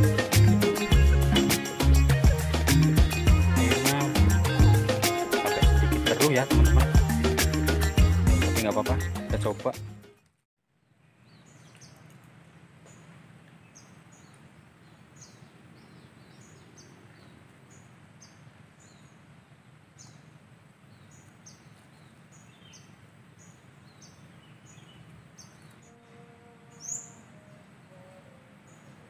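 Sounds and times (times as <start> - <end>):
lower bird chirps: 26.7 - 29.0.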